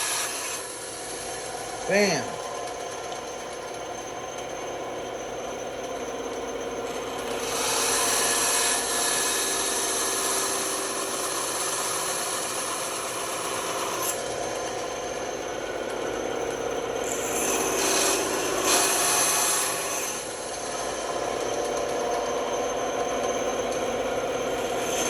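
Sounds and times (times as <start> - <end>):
band saw cutting: 0.0 - 25.0.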